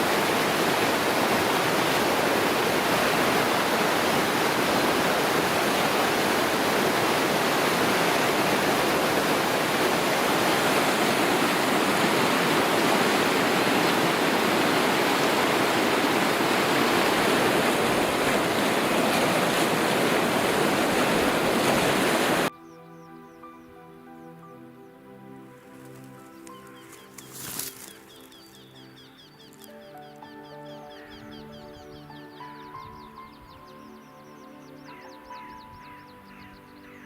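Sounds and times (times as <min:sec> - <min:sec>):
rushing water: 0:00.0 - 0:22.5.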